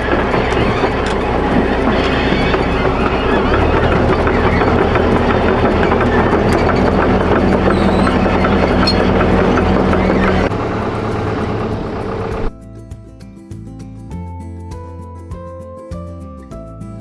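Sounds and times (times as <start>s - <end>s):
excavator engine drone: 0.0s - 12.6s
steel tracks clanking: 0.0s - 12.6s.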